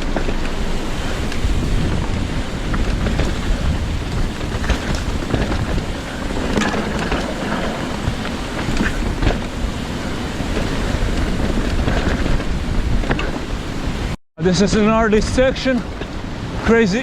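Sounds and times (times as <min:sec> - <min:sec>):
sharp clicks and rattles: 0:00.0 - 0:13.9
wind buffeting microphone: 0:00.0 - 0:17.0.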